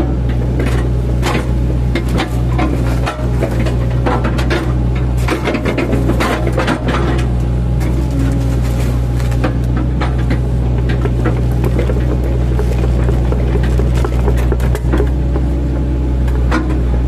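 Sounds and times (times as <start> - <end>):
excavator engine running: 0.0 - 17.0
bucket crunching tree trunks: 0.6 - 16.8.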